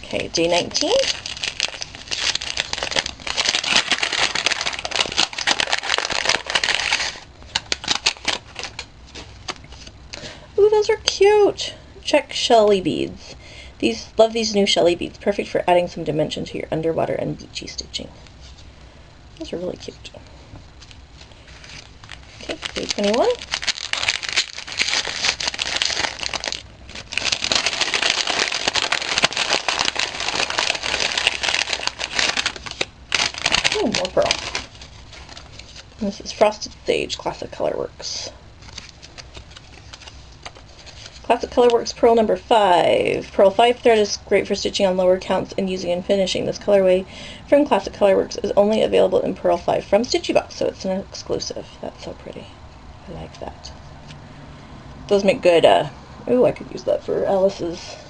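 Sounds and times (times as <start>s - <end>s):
packaging crinkling and tearing: 0.0s - 10.0s, 20.8s - 36.5s, 38.6s - 41.8s.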